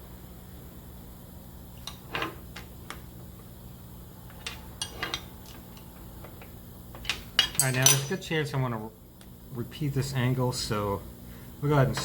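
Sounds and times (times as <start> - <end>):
light metal clicks and clinks: 7.0 - 8.2.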